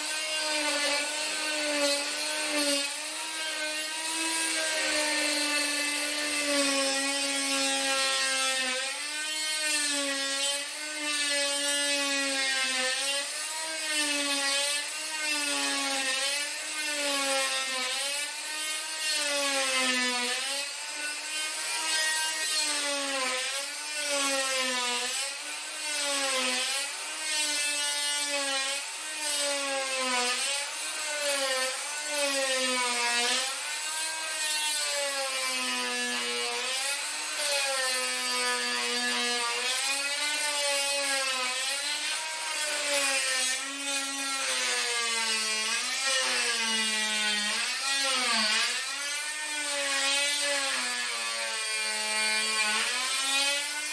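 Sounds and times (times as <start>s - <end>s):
high-pitched power tool cutting: 0.0s - 53.9s.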